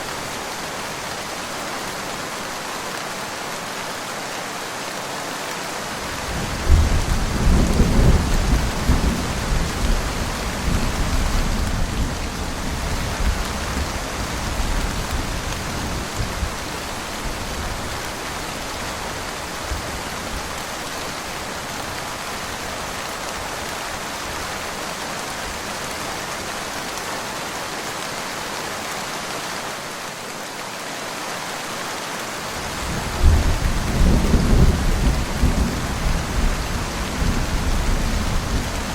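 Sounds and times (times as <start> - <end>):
steady rain falling: 0.0 - 38.9
thunder rumbling: 6.4 - 16.6, 32.8 - 38.9.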